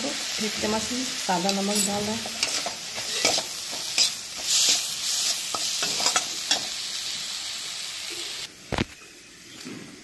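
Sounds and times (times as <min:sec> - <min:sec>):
chillies sizzling in hot oil: 0:00.0 - 0:10.0
spatula scraping a steel pan: 0:02.2 - 0:06.2.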